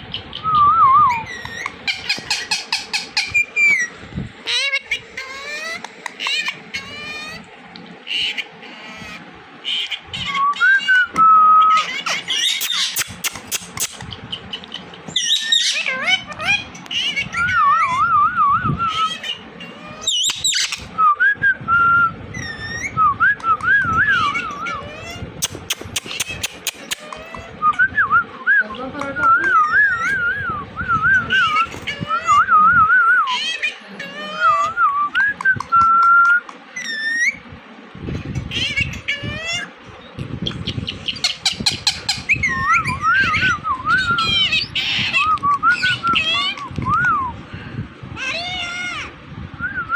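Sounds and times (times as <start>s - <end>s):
parrot whistling: 15.2s - 25.1s, 29.3s - 37.4s, 41.1s - 47.3s.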